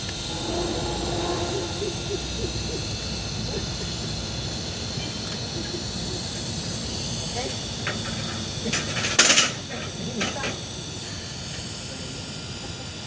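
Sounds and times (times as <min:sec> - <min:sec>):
low hoot-like notes: 0:00.0 - 0:04.2.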